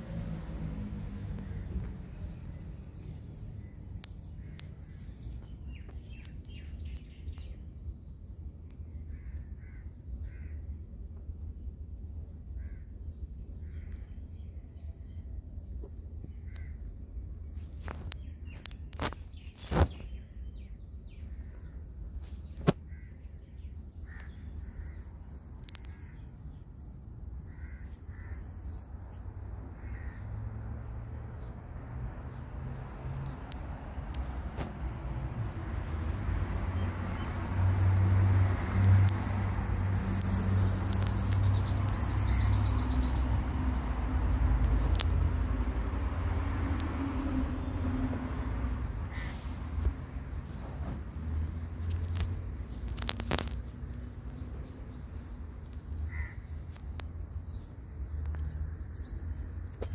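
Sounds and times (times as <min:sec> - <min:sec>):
steady low rumble: 0:00.0 - 0:18.4
crow-like caws: 0:09.1 - 0:10.6, 0:27.5 - 0:28.4, 0:29.8 - 0:30.3, 0:56.1 - 0:56.5.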